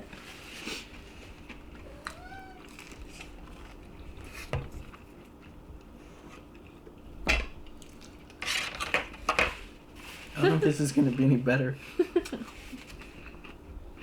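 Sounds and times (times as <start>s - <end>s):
cat meowing: 1.8s - 2.9s.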